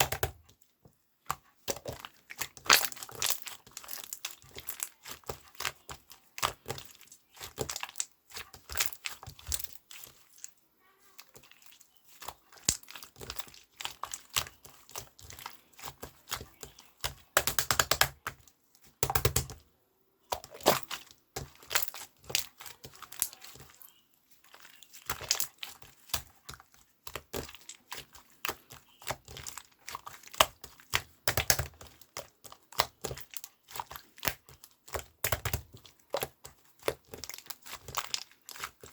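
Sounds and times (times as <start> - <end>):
crinkling and crackling: 20.3 - 38.9.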